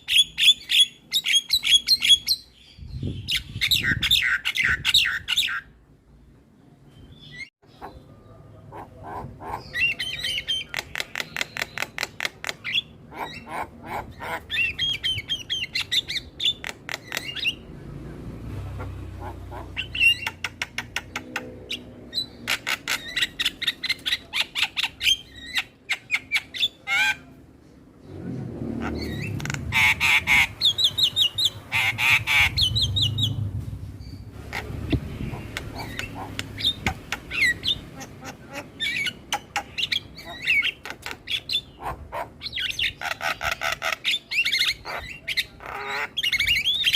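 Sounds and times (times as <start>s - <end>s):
starlings chattering: 7.0s - 46.9s.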